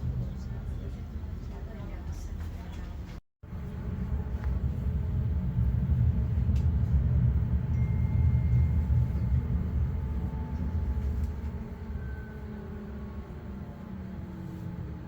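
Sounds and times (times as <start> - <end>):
tram rumbling: 0.0 - 15.0
faint thin whine: 7.7 - 14.8.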